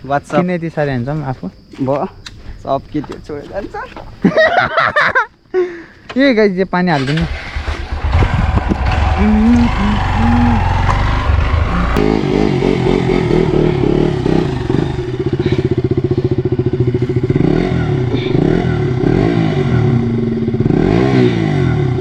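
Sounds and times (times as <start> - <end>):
motorcycle engine revving: 7.0 - 22.0.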